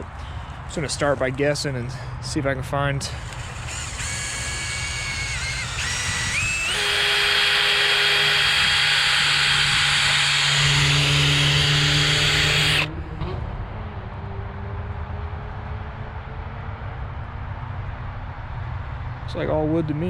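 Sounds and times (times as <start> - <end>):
power drill boring into wood: 3.1 - 12.9.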